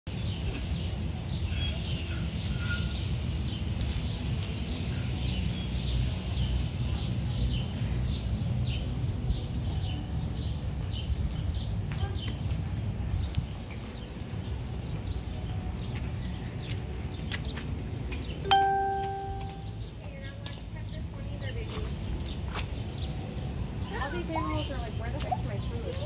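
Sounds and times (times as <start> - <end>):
small birds chirping: 0.1 - 26.0.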